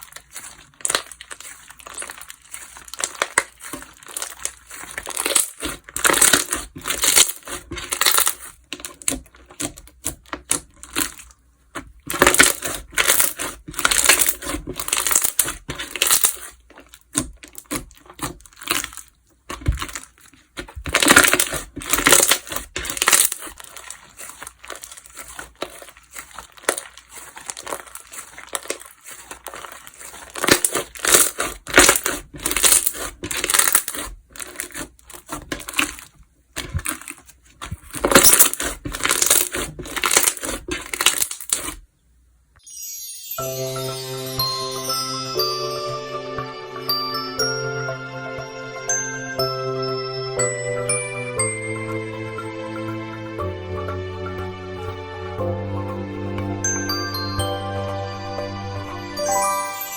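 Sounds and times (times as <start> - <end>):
slime squished by hand crackling: 0.0 - 41.8.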